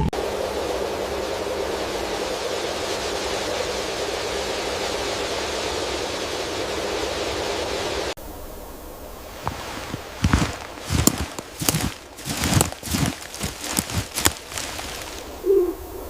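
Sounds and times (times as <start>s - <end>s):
quiet outdoor ambience: 0.0s - 16.0s
steady rushing noise: 9.1s - 15.4s.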